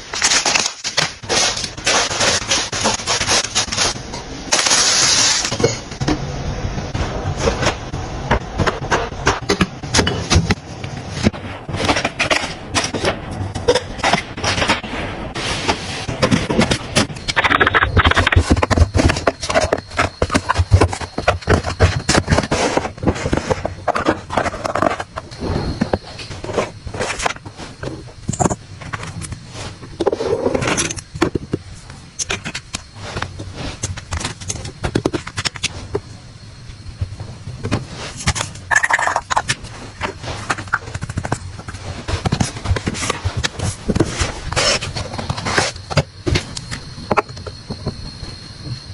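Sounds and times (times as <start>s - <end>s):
household items clicking and knocking: 16.1s - 29.4s.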